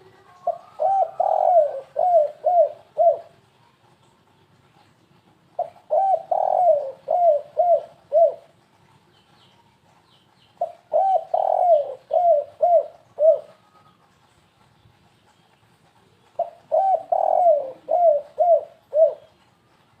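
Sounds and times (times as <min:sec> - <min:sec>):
dove cooing: 0:00.0 - 0:03.5, 0:05.6 - 0:08.7, 0:10.6 - 0:14.1, 0:16.1 - 0:19.6.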